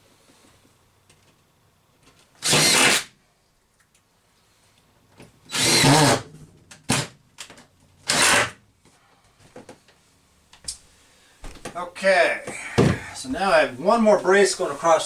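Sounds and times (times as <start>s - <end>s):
power drill driving screws: 2.4s - 3.1s, 5.5s - 6.2s, 8.0s - 8.6s.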